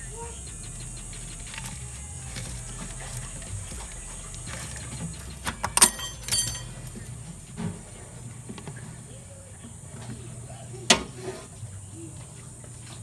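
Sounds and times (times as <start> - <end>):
metal tools clinking on hose clamps: 4.4 - 7.1.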